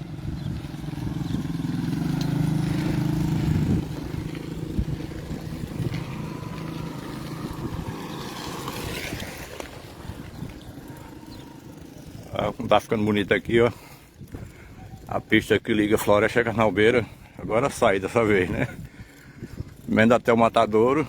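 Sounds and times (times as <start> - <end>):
vehicle engine running: 0.0 - 12.3.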